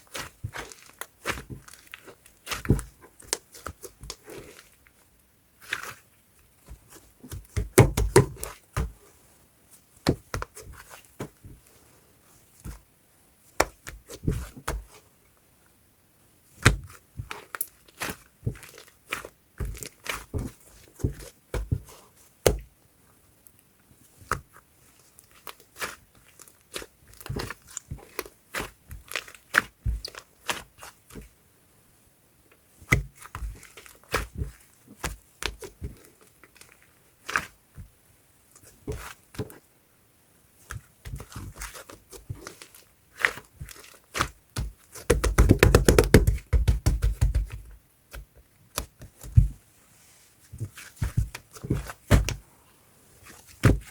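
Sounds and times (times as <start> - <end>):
slime thumps: 43.2 - 49.6, 50.6 - 52.4, 53.6 - 53.9.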